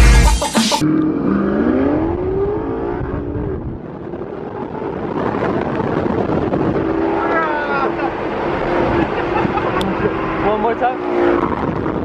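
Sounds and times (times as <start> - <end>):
vehicle engine accelerating: 0.8 - 12.0.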